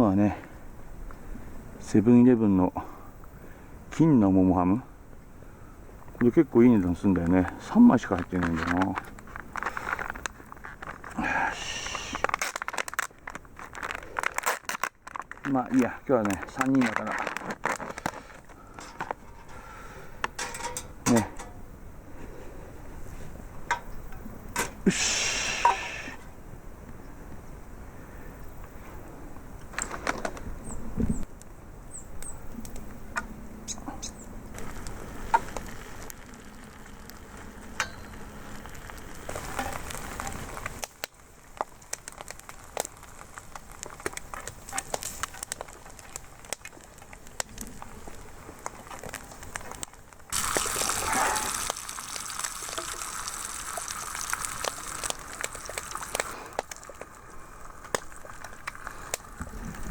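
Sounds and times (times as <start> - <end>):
wood fire crackling: 0.0 - 27.3, 28.0 - 59.9
hissing: 9.5 - 12.8, 50.3 - 59.9
camp cookware clicking and knocking: 20.2 - 21.6, 23.6 - 24.8.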